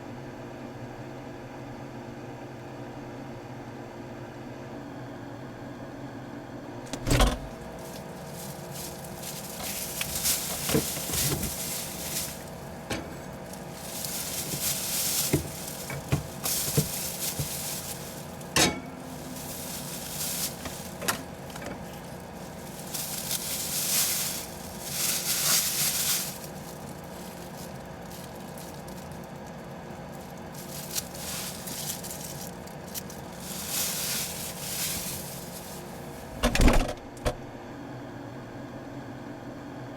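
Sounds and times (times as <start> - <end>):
steady electrical hum: 6.6 - 38.6
rustling and clinking handling: 6.9 - 36.5.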